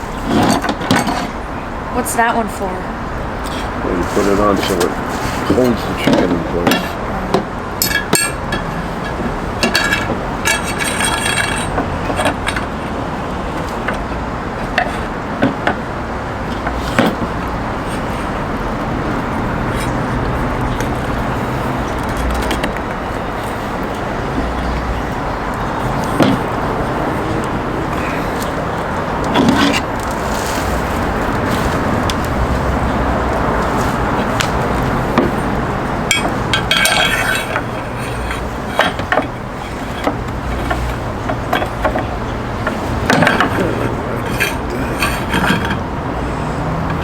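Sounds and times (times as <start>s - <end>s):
metal spit clinking: 7.8s - 12.8s, 33.3s - 45.9s.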